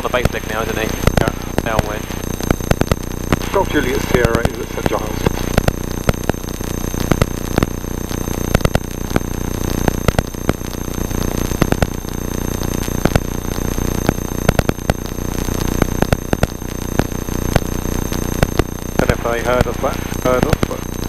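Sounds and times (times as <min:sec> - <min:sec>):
crackling radio interference: 0:00.0 - 0:21.0
faint high whine: 0:00.0 - 0:21.0.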